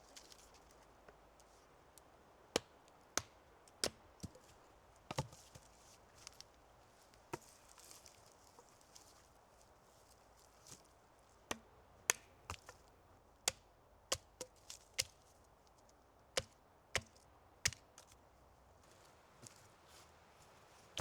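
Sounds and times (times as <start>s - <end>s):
wood being chopped: 2.6s - 4.5s, 5.1s - 5.6s, 11.5s - 15.2s, 16.4s - 18.0s.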